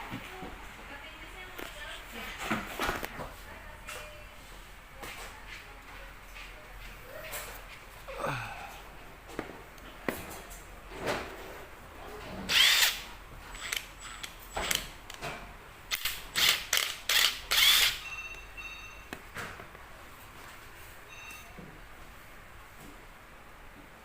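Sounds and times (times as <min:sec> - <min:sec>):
impact wrench bursts: 0:12.5 - 0:14.8, 0:15.9 - 0:18.1.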